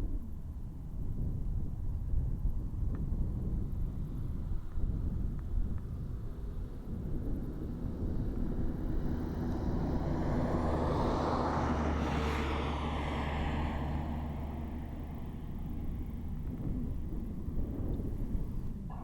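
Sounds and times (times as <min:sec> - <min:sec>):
car engine and road hum: 0:00.2 - 0:19.0
passing vehicle rush: 0:05.9 - 0:19.0.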